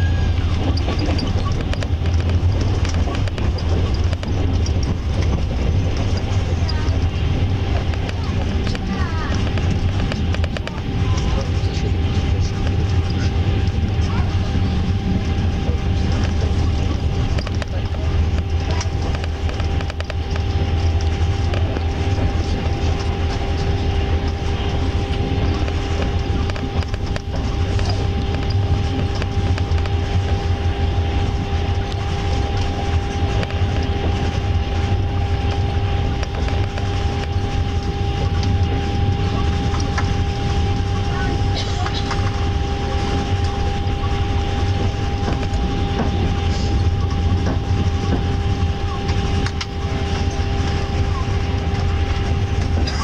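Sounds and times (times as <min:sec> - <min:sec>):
constant hum: 0:00.0 - 0:53.0
train wheels rumbling on rails: 0:00.0 - 0:53.0.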